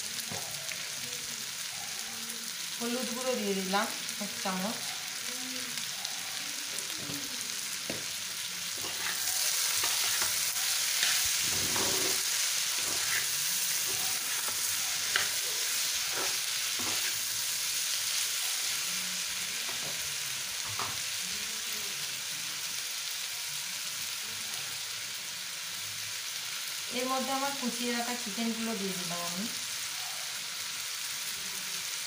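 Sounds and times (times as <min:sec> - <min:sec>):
potatoes sizzling in oil: 0:00.0 - 0:32.0
metal spatula scraping a pan: 0:08.8 - 0:17.5.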